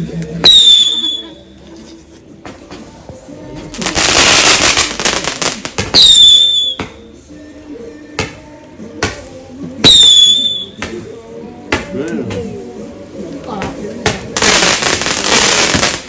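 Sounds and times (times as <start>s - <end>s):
fireworks crackling: 0.2s - 7.1s, 8.2s - 16.0s
high firework whistle: 0.4s - 1.3s, 5.9s - 7.0s, 9.8s - 10.8s
fireworks bangs: 3.7s - 7.0s, 9.1s - 11.1s, 13.6s - 16.0s.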